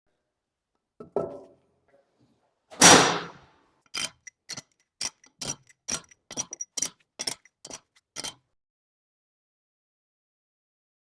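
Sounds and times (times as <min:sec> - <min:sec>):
metallic clicks and taps: 0:04.0 - 0:08.3.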